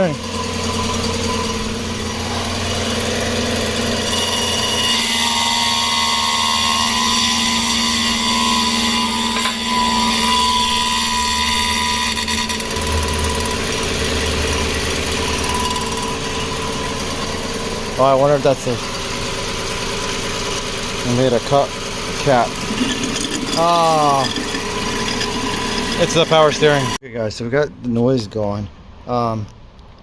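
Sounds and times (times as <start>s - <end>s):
car engine idling: 0.0s - 4.0s, 12.7s - 26.9s
power steering pump whine: 0.0s - 27.0s.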